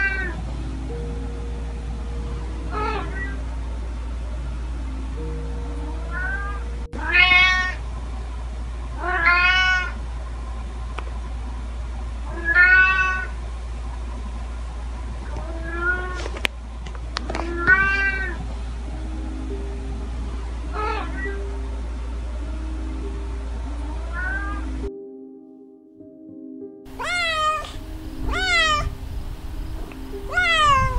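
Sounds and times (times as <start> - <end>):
steady low hum: 0.0 - 24.9, 26.9 - 30.9
cat meowing: 2.7 - 3.4, 6.1 - 7.8, 9.0 - 10.0, 12.3 - 13.3, 15.4 - 16.2, 17.5 - 18.4, 20.8 - 21.4, 24.1 - 24.7, 26.9 - 30.9.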